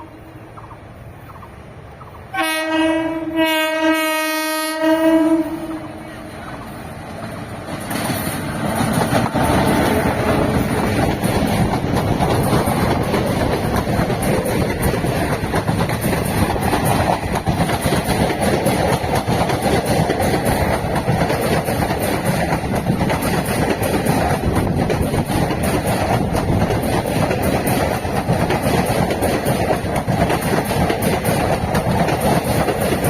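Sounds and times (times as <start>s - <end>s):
train passing at speed: 0.0s - 33.0s
wheels clicking over rail joints: 6.5s - 33.0s.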